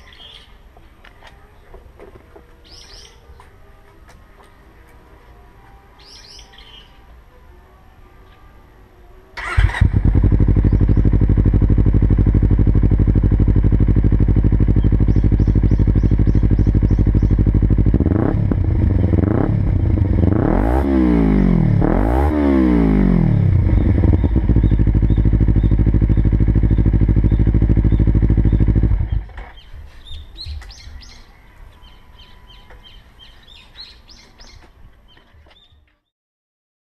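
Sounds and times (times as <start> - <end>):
birds chirping: 0.0 - 7.6, 10.5 - 11.7, 13.5 - 20.9, 23.6 - 36.1
motorcycle engine idling and revving: 9.4 - 31.2.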